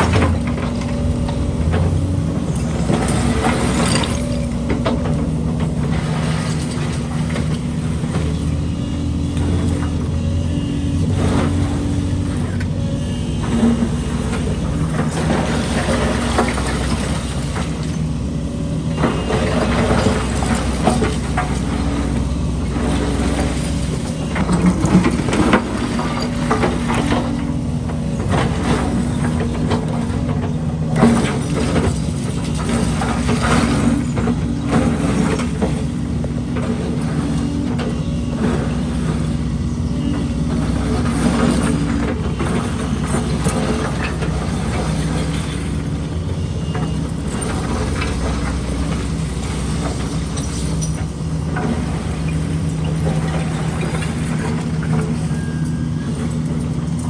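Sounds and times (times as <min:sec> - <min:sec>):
concrete rubble clanking: 0:00.0 - 0:08.6, 0:13.3 - 0:57.0
excavator engine running: 0:00.0 - 0:57.0.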